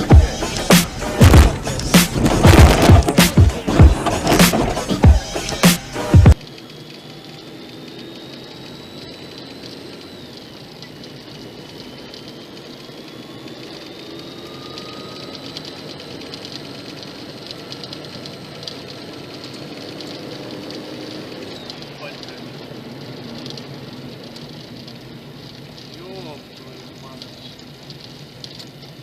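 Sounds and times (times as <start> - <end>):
car engine and road noise: 0.0 - 29.0.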